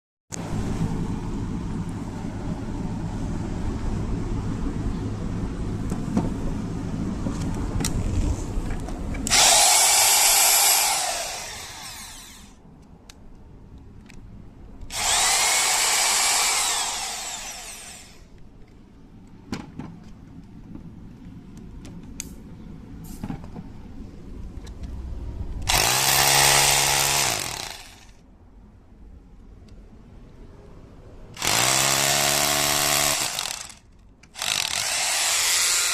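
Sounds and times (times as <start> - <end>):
hammer drill motor whining: 9.3 - 12.6, 14.9 - 18.3, 25.7 - 28.1, 31.4 - 33.8, 34.4 - 35.9.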